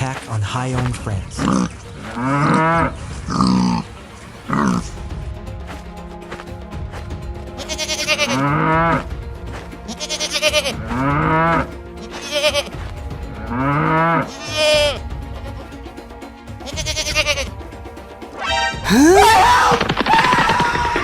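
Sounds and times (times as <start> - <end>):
background music: 0.0 - 21.0
sheep bleating: 7.6 - 9.0, 9.9 - 12.7, 13.8 - 15.0, 16.6 - 17.5.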